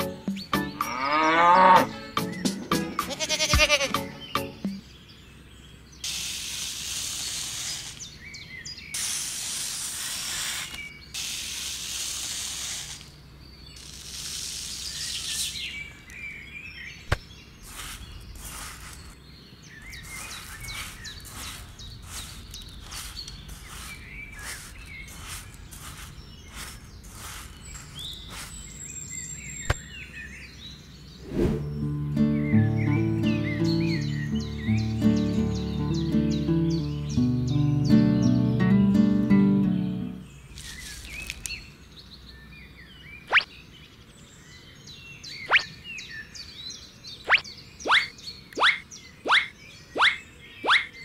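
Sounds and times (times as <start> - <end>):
sand pouring into plastic tray: 9.0 - 13.1, 17.6 - 19.1, 20.0 - 28.6
faint bird chirps: 12.8 - 37.3, 40.1 - 51.0
metal blade scraping sand: 17.6 - 19.2, 19.9 - 28.9.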